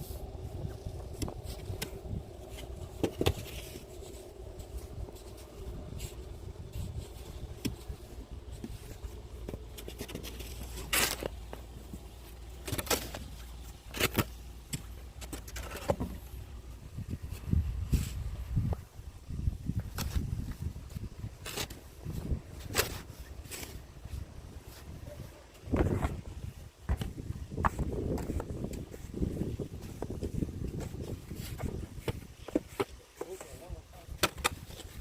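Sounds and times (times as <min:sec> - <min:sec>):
steady low rumble: 0:00.0 - 0:32.5
snow shovel scraping: 0:09.9 - 0:11.4.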